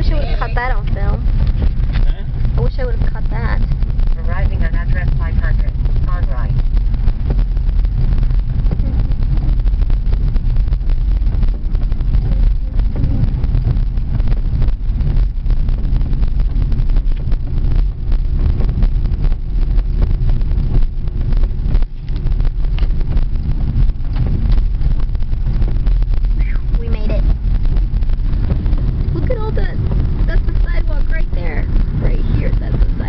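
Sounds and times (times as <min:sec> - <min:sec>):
car engine and road rumble: 0:00.0 - 0:33.0
wind buffeting microphone: 0:00.0 - 0:33.0.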